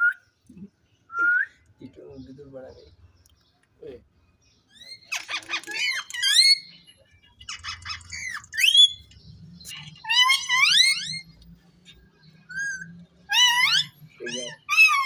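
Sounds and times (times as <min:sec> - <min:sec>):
parrot rasping chatter and squawks: 0:04.7 - 0:15.0.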